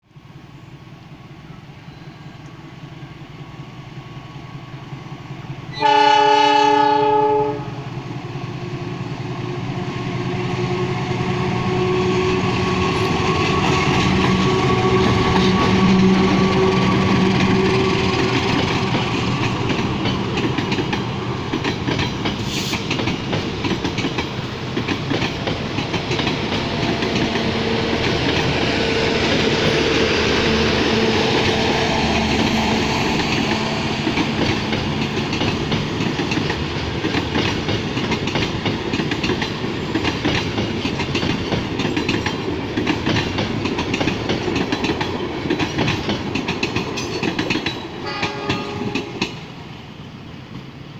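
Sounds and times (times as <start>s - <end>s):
train wheels clattering on rails: 11.0s - 49.6s.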